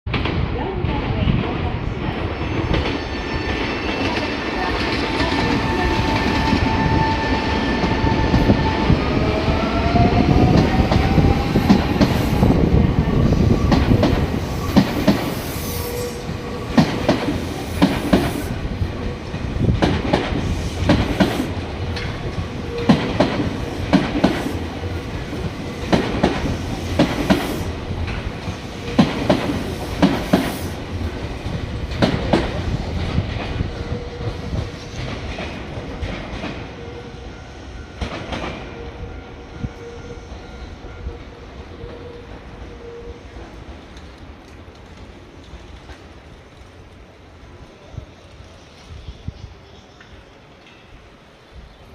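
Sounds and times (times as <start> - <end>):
train wheels clacking over rail joints: 16.7 - 18.5, 19.4 - 24.6, 25.4 - 30.7.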